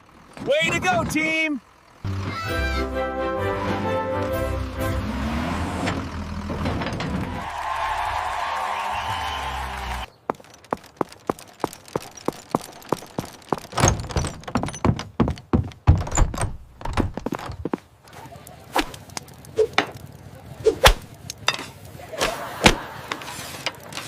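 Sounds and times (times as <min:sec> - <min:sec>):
knocks and thunks: 0:06.4 - 0:07.4, 0:12.6 - 0:17.8.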